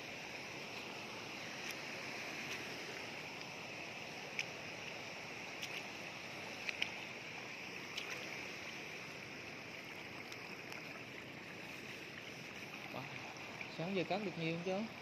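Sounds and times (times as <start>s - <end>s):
feet wading through shallow water: 0.0s - 15.0s
steady background hiss: 0.0s - 15.0s
sharp splashes: 7.8s - 9.0s.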